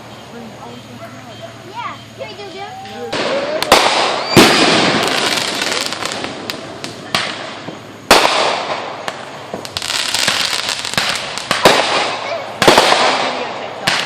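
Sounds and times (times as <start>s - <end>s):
fireworks bangs: 0.0s - 14.0s.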